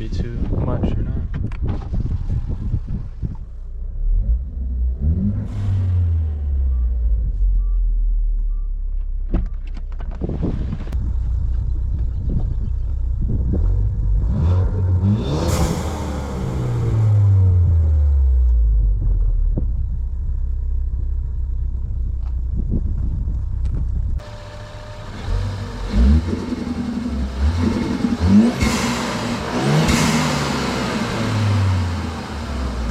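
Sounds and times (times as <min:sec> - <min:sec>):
car engine running at low revs: 0:00.0 - 0:32.9.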